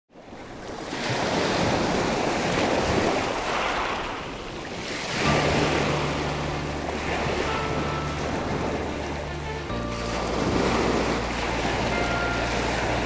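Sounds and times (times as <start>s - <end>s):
sea waves washing: 0.4s - 13.0s
low hum: 5.3s - 13.0s.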